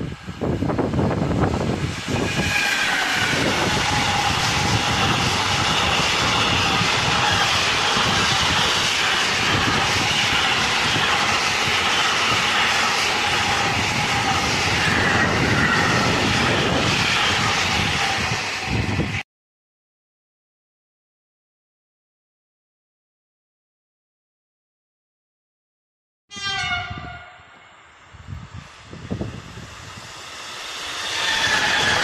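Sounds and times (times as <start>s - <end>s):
train wheels rushing on rails: 0.0s - 19.2s, 26.6s - 32.0s.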